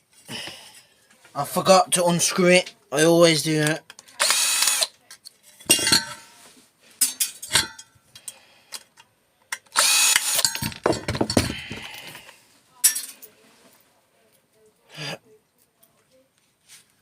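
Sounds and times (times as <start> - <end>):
power drill unscrewing screw: 4.2 - 4.9, 9.7 - 10.6
loose metal parts rattling: 7.0 - 8.3, 10.3 - 11.9.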